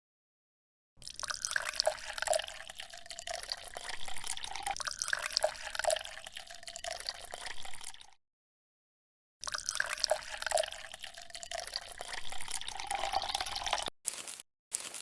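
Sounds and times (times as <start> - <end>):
water trickling and dripping: 1.0 - 8.2, 9.4 - 13.9.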